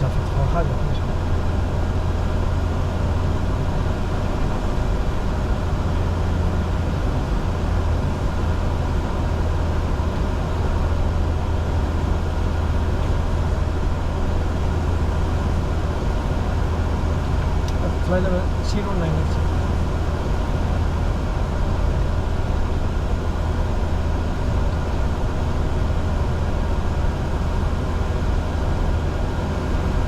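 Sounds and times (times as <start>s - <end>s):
jet engines humming: 0.0s - 30.0s.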